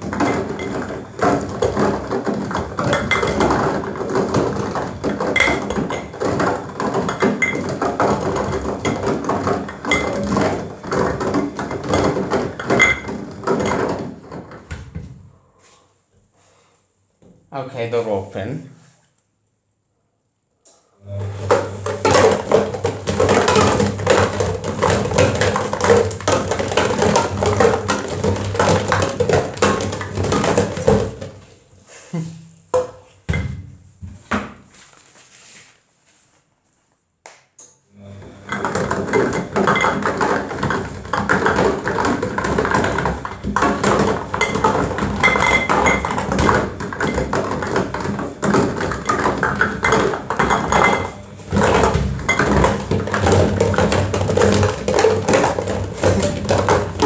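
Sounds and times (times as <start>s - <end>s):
things tumbling in drum: 0.0s - 15.3s, 21.1s - 31.7s, 38.0s - 57.0s
washing machine motor hum: 21.0s - 29.0s, 37.9s - 45.3s.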